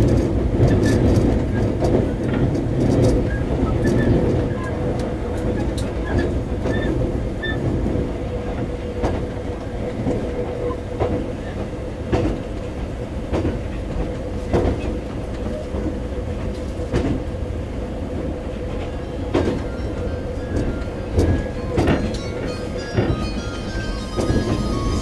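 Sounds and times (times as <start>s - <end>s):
wheels clicking over rail joints: 0.0s - 17.3s, 18.2s - 25.0s
train low rumble: 0.0s - 25.0s.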